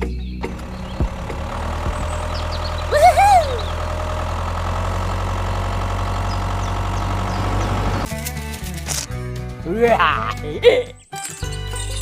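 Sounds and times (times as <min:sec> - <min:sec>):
small engine idling with ticking: 0:00.3 - 0:08.1.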